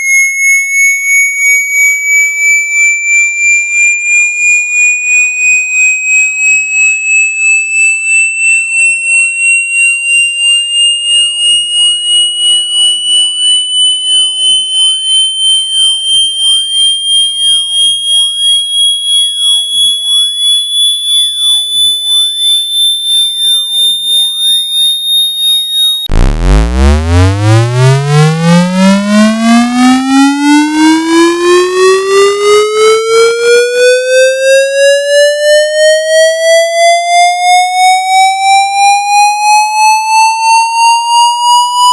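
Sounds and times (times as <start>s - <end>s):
high pulsing rising tone: 26.0s - 32.5s
low buzzy sweeping tone: 26.1s - 29.5s.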